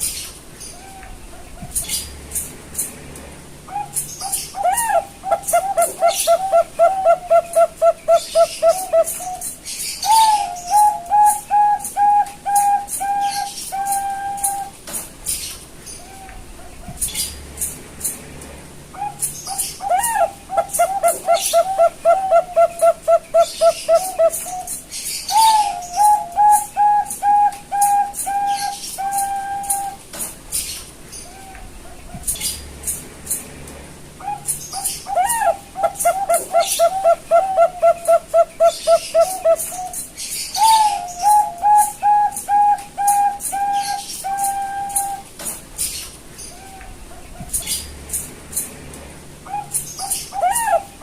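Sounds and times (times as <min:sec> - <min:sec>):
dove cooing: 0:03.6 - 0:14.8, 0:18.9 - 0:30.0, 0:34.2 - 0:45.3, 0:49.4 - 0:51.0.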